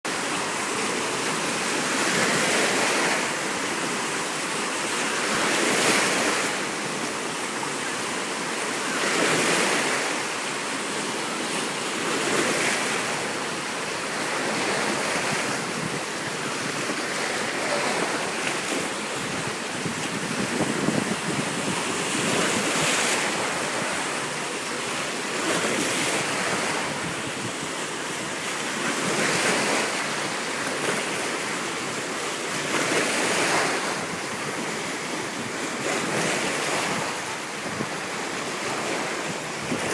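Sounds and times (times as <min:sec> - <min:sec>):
sea waves washing in: 0:00.1 - 0:39.9
wind on microphone: 0:14.1 - 0:24.3, 0:25.4 - 0:27.8, 0:32.7 - 0:39.9.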